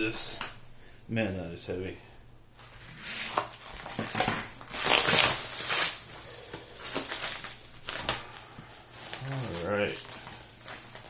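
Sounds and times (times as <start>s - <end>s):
packing material rustling: 2.6s - 11.0s.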